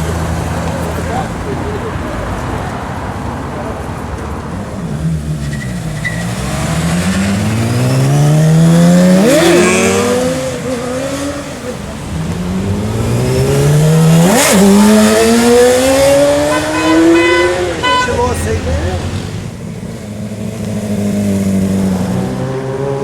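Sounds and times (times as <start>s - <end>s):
motorcycle engine accelerating: 6.3s - 23.0s.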